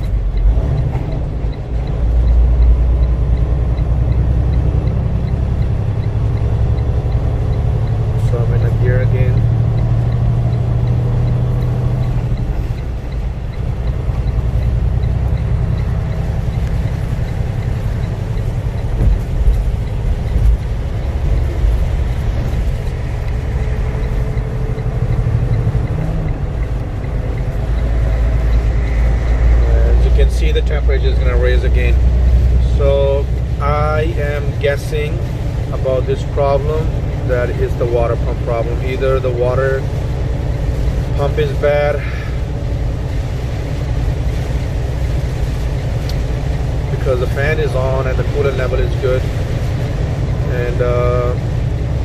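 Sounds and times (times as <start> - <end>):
faint regular ticking: 0.0 - 52.0
road noise: 0.0 - 52.0
truck diesel engine revving: 0.0 - 52.0.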